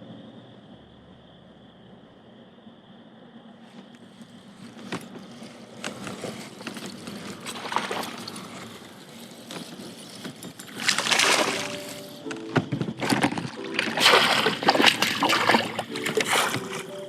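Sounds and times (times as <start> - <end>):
water splashing and trickling: 5.4 - 12.2, 13.0 - 17.0.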